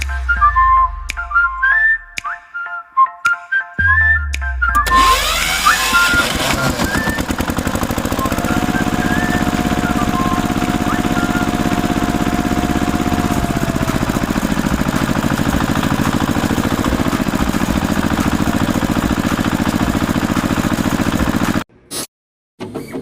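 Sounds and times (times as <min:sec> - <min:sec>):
small engine chugging: 0:04.8 - 0:21.6.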